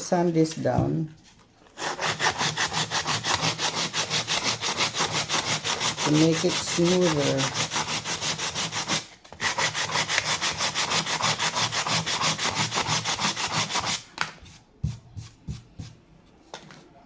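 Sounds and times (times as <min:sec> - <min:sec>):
sandpaper rubbing on wood: 0:01.8 - 0:14.0.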